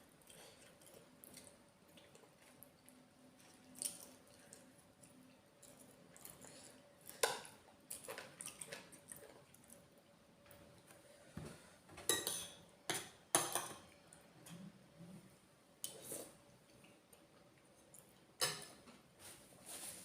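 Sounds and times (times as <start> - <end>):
cutlery clinking against a dish: 12.0 - 13.8, 18.4 - 18.8.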